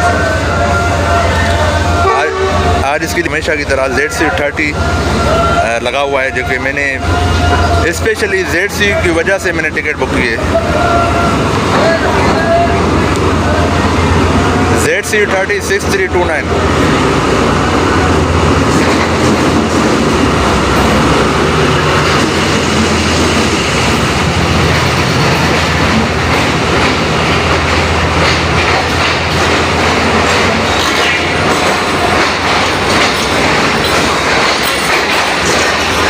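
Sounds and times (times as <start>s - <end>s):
train coaches rumbling past: 0.0s - 36.0s
wheels clattering over rail joints: 21.8s - 36.0s.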